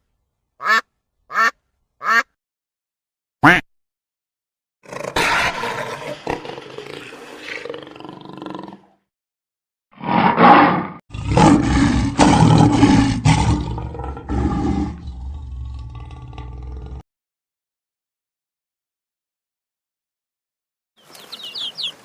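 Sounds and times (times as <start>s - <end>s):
lion roaring: 4.8s - 9.0s, 10.0s - 17.0s.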